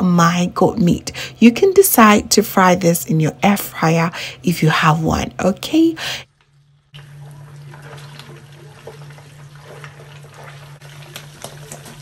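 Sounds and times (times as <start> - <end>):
low hum: 0.0 - 11.9.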